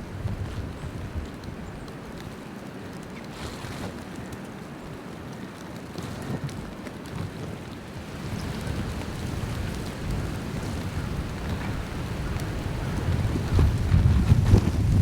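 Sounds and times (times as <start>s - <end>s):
blizzard wind gusting on microphone: 0.0s - 2.2s, 7.0s - 15.0s.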